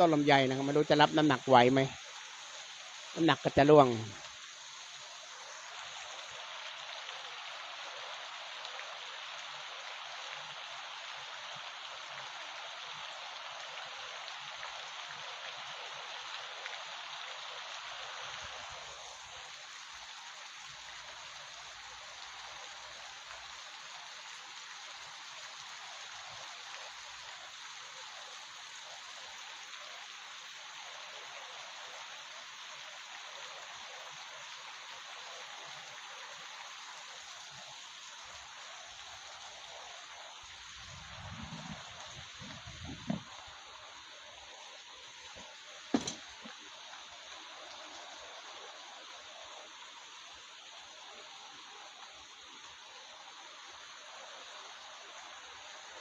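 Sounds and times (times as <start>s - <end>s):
heavy rain falling: 40.5s - 46.8s.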